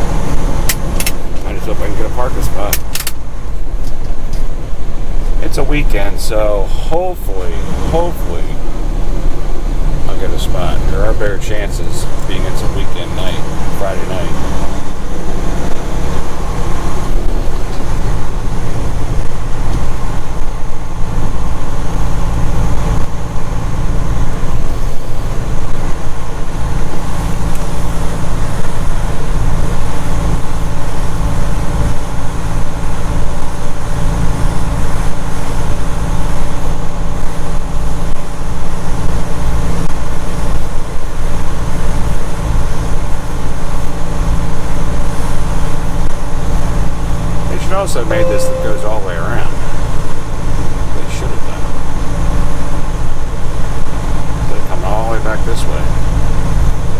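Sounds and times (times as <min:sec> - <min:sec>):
road noise: 0:00.0 - 0:56.9
truck diesel engine drone: 0:00.0 - 0:56.9.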